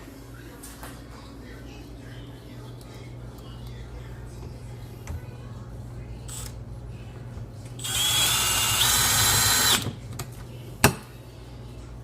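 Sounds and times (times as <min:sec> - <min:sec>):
power drill motor whine: 0:07.8 - 0:09.8.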